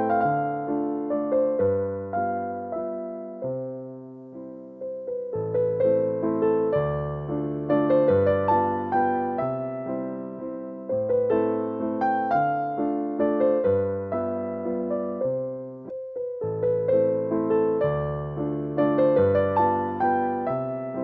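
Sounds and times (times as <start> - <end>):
gentle piano waltz: 0.0 - 21.0.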